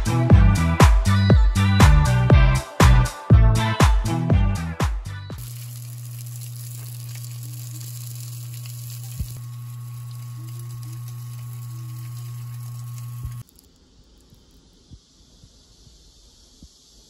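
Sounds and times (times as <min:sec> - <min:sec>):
crepes sizzling in a pan: 0:05.4 - 0:13.5
steady low hum: 0:05.4 - 0:16.3.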